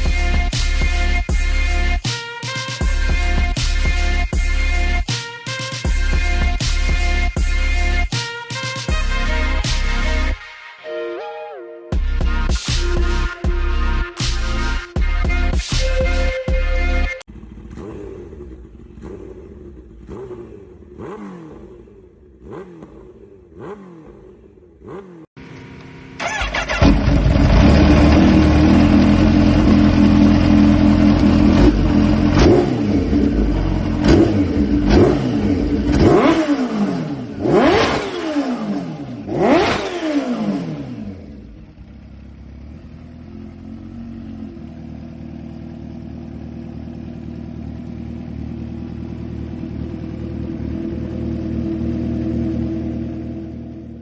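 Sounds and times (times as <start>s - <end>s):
motorcycle engine revving: 17.2s - 54.0s.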